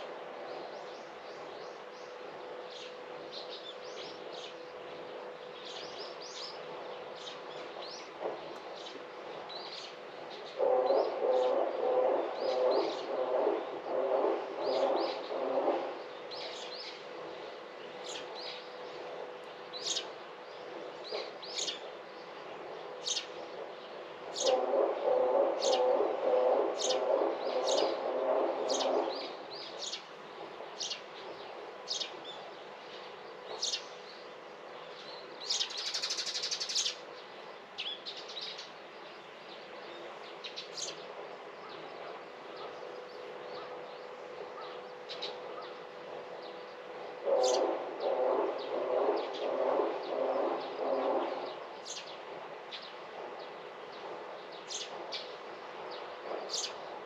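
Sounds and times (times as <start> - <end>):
small birds chirping: 34.9 - 45.8, 47.4 - 56.8.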